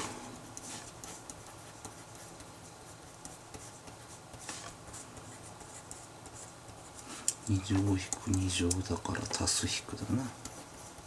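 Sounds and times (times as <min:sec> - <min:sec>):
pen scratching on paper: 0:00.6 - 0:07.0.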